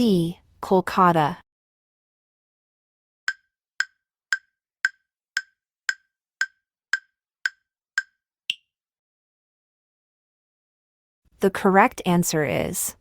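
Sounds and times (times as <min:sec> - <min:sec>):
countdown timer ticking: 0:03.3 - 0:08.6.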